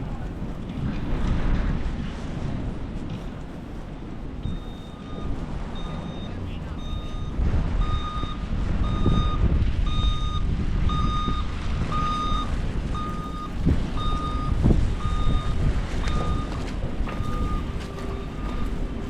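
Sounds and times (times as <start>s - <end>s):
traffic rumble: 0.0s - 19.0s
wind: 0.0s - 19.0s
vehicle reversing alarm beeping: 4.3s - 19.0s.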